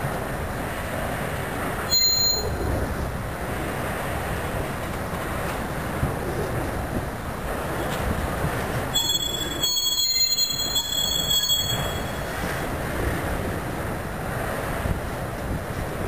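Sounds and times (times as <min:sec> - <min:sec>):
freight train wheels rumbling: 0:00.0 - 0:16.0
high-pitched wheel squeal: 0:01.9 - 0:02.7, 0:09.0 - 0:12.5.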